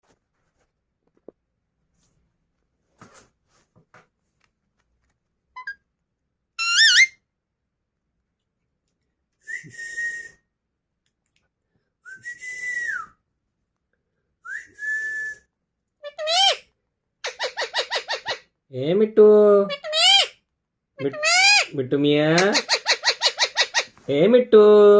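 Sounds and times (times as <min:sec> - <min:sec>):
parakeet whistling: 0:06.6 - 0:07.2, 0:22.4 - 0:23.9.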